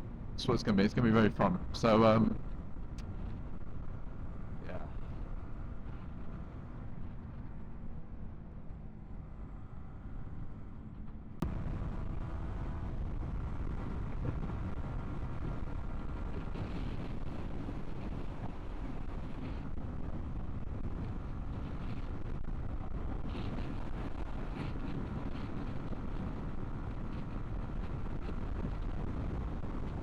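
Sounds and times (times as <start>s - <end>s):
wind buffeting helmet microphone: 11.4s - 30.0s.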